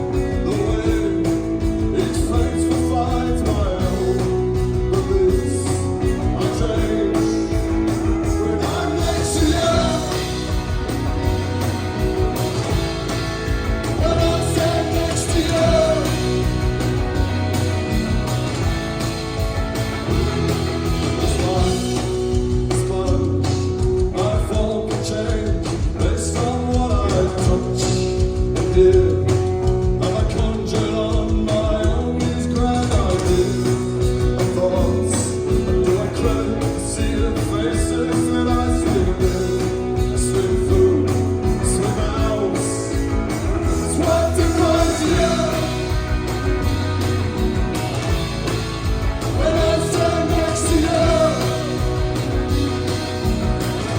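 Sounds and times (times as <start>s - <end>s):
live rock band: 0.0s - 53.9s
person singing: 14.0s - 16.4s, 43.6s - 46.1s, 49.3s - 52.2s.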